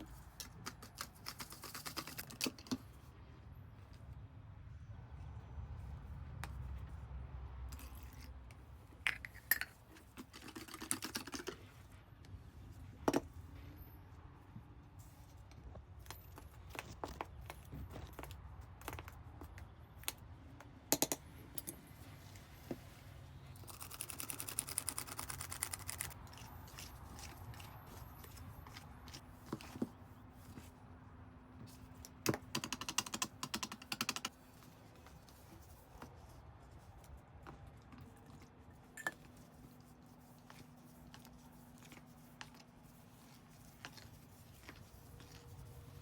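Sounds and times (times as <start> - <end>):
utensils clinking against a bowl: 38.9 - 39.3.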